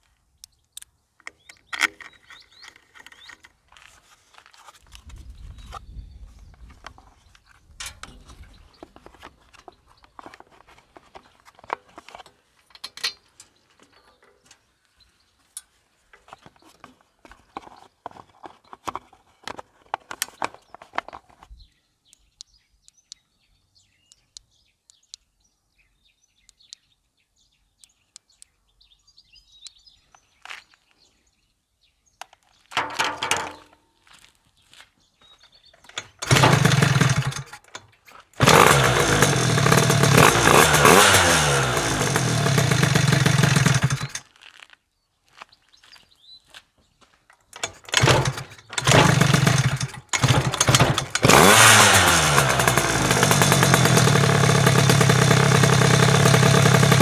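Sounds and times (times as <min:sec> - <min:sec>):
plastic shroud clicks and knocks: 0:32.7 - 0:33.8.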